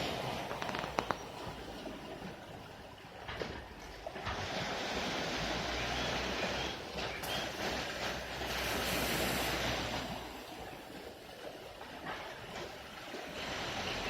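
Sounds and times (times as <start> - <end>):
waves washing on shore: 0.0 - 14.0
wind rumbling on microphone: 0.0 - 14.0.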